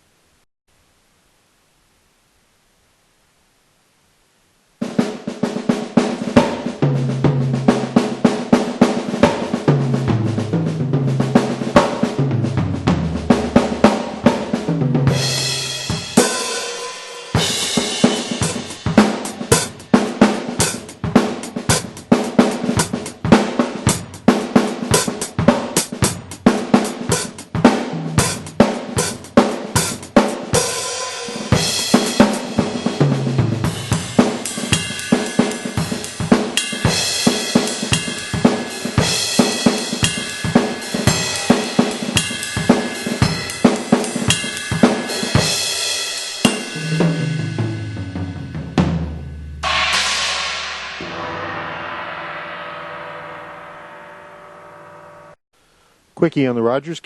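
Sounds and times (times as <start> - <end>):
drum kit groove: 4.8 - 54.3
cymbals ringing: 13.2 - 20.9, 33.7 - 55.4.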